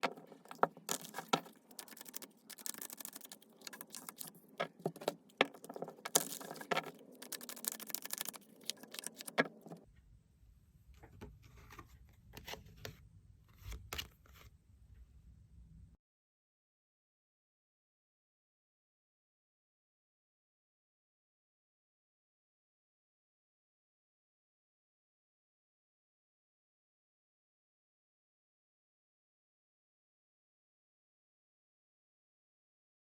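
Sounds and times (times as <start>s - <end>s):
cards rustling and clicking: 0.0s - 9.8s.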